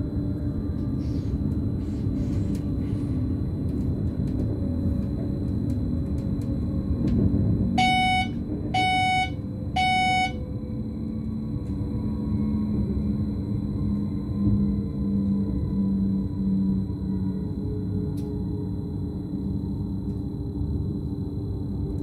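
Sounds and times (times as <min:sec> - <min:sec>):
train wheels and drive rumbling: 0:00.0 - 0:15.7
short electronic beeps: 0:07.8 - 0:10.4.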